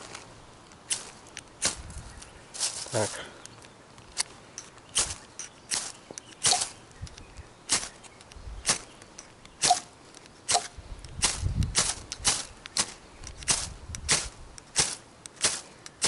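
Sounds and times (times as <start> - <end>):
wind rumble: 0.0 - 2.8, 10.6 - 14.8.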